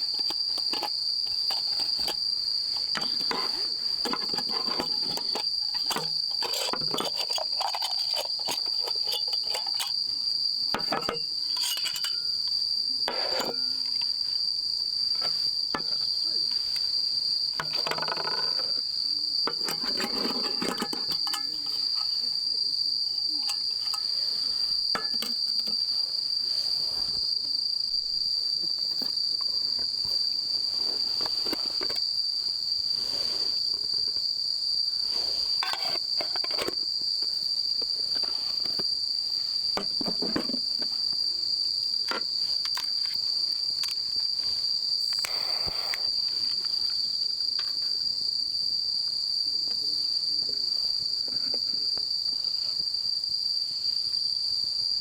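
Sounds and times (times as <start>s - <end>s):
clinks and knocks: 0.0s - 10.0s, 10.7s - 14.4s, 15.1s - 16.9s, 17.5s - 22.4s, 23.2s - 25.9s, 35.6s - 38.9s, 39.8s - 41.0s
crickets singing: 0.0s - 55.0s.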